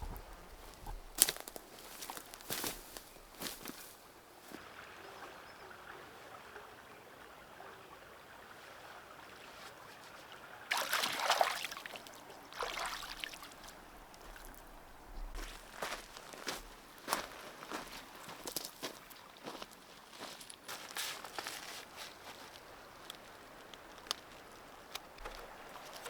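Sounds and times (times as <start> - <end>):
water trickling: 10.6 - 16.6.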